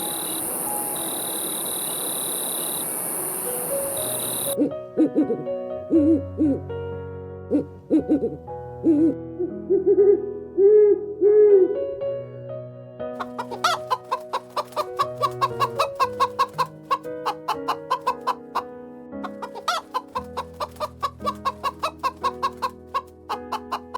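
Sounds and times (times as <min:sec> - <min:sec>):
chickens clucking: 0:00.0 - 0:04.6, 0:13.2 - 0:18.6, 0:19.2 - 0:23.9
soft keyboard music: 0:00.0 - 0:23.9.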